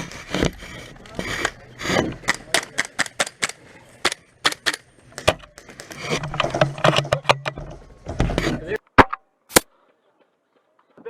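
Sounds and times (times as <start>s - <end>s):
muffled voices: 0.0s - 7.3s
airsoft guns firing and clicking: 2.2s - 6.2s.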